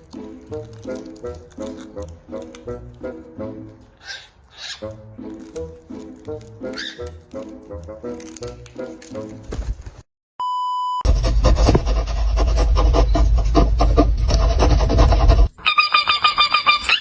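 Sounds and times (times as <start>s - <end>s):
parrot squawking: 4.0s - 5.0s, 6.6s - 7.2s, 15.6s - 17.0s
loud rasping noise: 11.1s - 15.6s.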